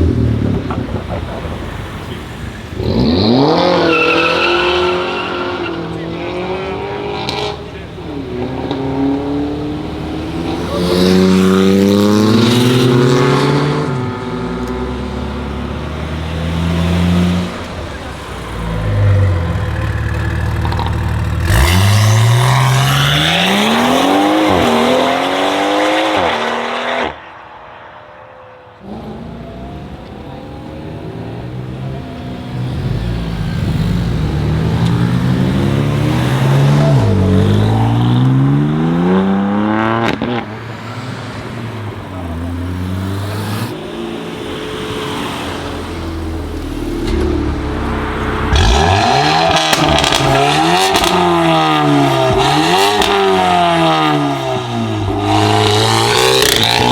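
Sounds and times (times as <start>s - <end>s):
performance car engines revving: 0.0s - 56.9s.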